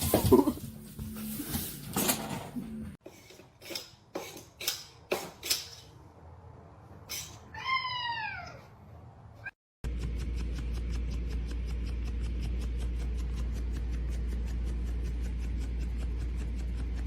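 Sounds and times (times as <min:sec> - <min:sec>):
cat meowing: 0:07.5 - 0:08.7.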